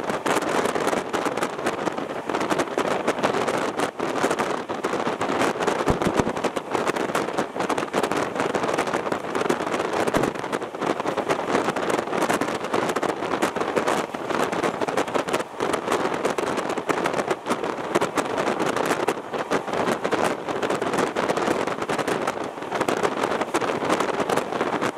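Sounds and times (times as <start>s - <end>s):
train wind and wheel noise: 0.0s - 24.9s.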